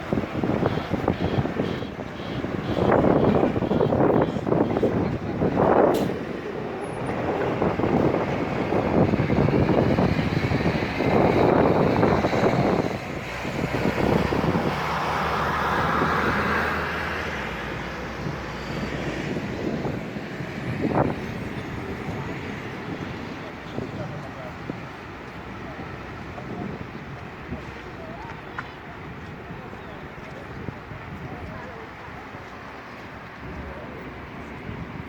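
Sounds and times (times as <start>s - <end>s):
strong wind gusts buffeting microphone: 0.0s - 35.0s.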